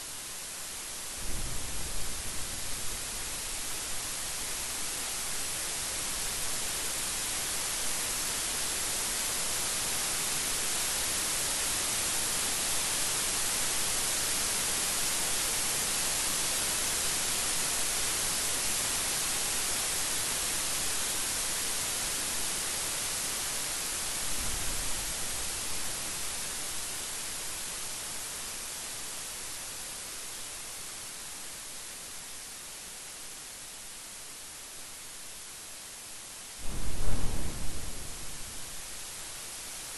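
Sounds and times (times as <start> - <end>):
steady rain hiss: 0.0 - 39.9
brief low rumble: 36.6 - 38.8.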